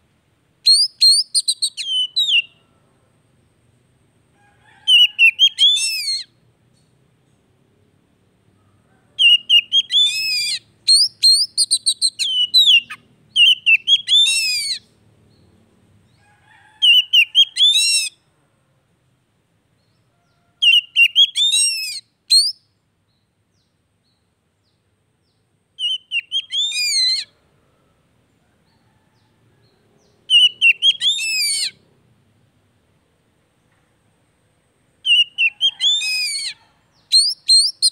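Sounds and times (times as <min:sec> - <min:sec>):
bird warbling and whistling: 0:00.7 - 0:02.6, 0:04.9 - 0:06.3, 0:09.2 - 0:14.8, 0:16.8 - 0:18.1, 0:20.6 - 0:22.6, 0:25.8 - 0:27.3, 0:30.3 - 0:31.8, 0:35.1 - 0:37.9.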